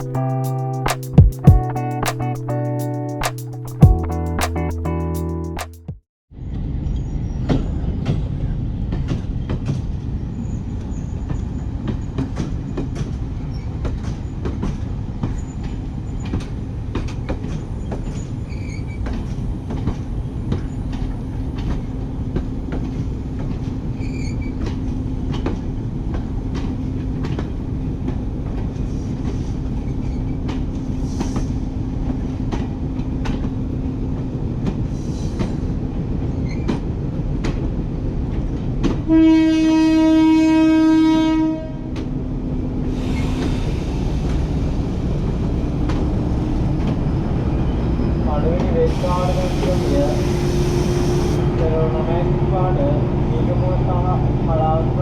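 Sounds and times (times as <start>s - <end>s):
wheel or brake squeals: 24.0s - 24.7s
train rumbling: 41.4s - 55.0s.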